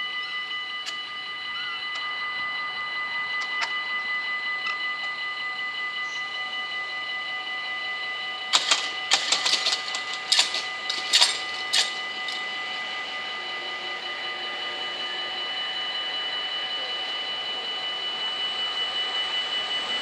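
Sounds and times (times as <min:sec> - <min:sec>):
sharp metallic clacks: 0:08.5 - 0:12.6
level crossing bells ringing: 0:08.5 - 0:13.1.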